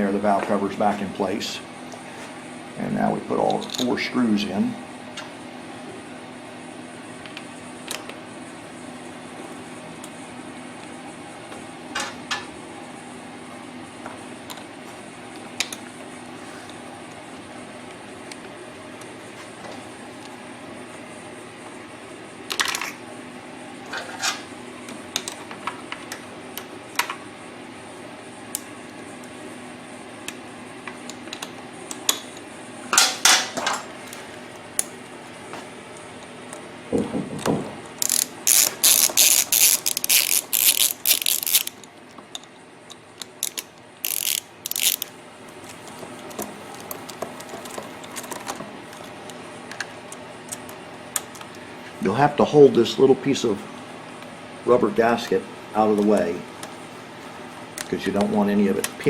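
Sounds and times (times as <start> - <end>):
hand ratchet clicking: 38.0 - 41.9, 43.4 - 45.1.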